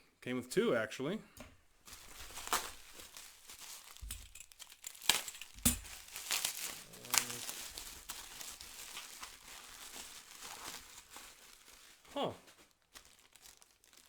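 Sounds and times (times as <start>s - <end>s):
plastic crinkling: 1.4s - 14.0s
small parts clicking and knocking: 3.9s - 6.5s.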